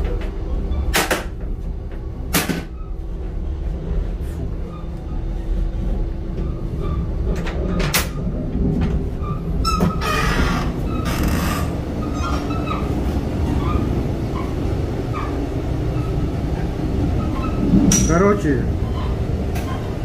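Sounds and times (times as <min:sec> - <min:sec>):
train rumble inside carriage: 0:00.0 - 0:20.0.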